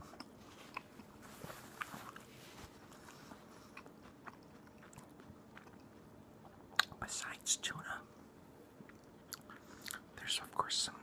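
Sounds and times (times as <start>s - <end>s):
person chewing: 0.0s - 7.0s, 8.8s - 10.1s
mouth clicks and smacks: 3.8s - 7.2s.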